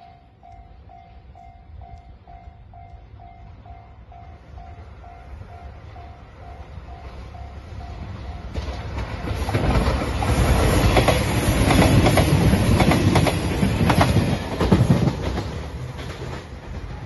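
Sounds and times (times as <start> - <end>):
level-crossing warning bell: 0.0 - 9.1
diesel train rumbling past: 0.0 - 17.0
wheels clacking over rail joints: 8.2 - 17.0.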